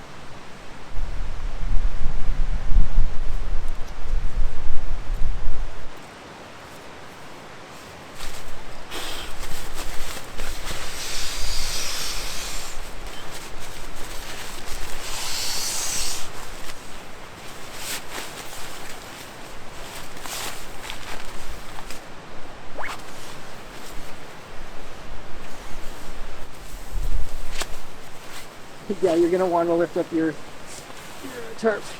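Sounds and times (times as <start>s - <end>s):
wind rumble on microphone: 0.0s - 6.0s, 16.2s - 29.0s
fabric rustling and rubbing: 6.5s - 31.9s.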